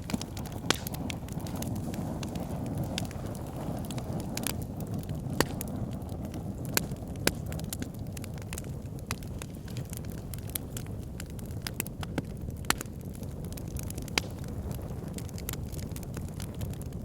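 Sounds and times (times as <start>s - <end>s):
sharp pops and snaps: 0.0s - 5.8s, 11.6s - 14.5s
fire crackling: 0.0s - 17.0s.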